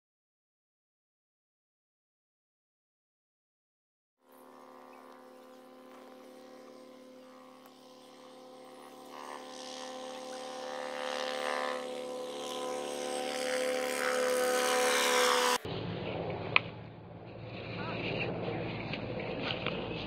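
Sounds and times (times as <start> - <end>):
helicopter rotor and engine: 4.2 - 20.0.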